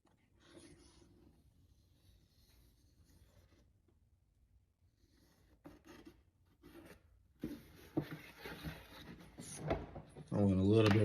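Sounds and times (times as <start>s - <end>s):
faint scratching of marking: 0.2s - 3.8s.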